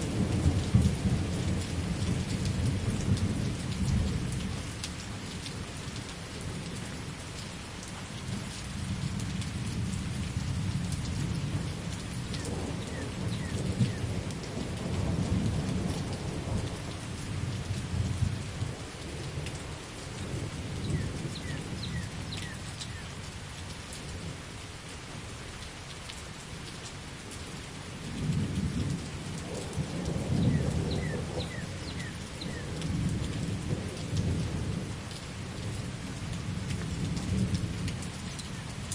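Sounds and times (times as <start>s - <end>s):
steady rain: 0.0s - 38.9s
rolling thunder: 28.3s - 35.0s.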